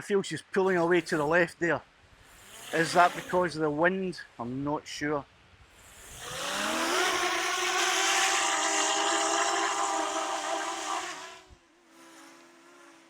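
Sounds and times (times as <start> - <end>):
drone propellers whining: 2.3 - 3.6, 5.8 - 12.7.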